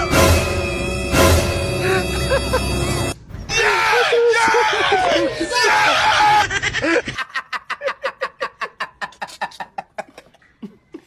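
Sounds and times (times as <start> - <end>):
person laughing: 1.8 - 2.9, 6.2 - 11.0
loud screaming: 3.4 - 6.5.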